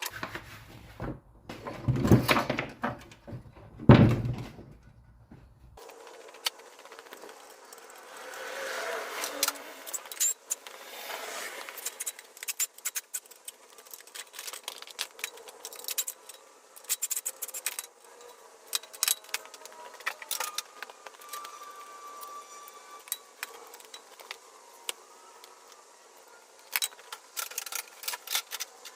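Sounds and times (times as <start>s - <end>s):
metal tools clinking and rattling: 9.4s - 10.7s, 11.8s - 22.4s.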